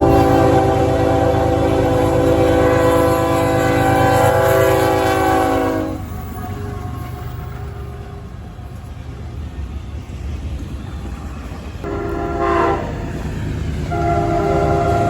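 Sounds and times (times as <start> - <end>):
train air horn: 0.0 - 8.2, 11.8 - 13.2, 13.9 - 15.0
low train rumble: 0.0 - 15.0.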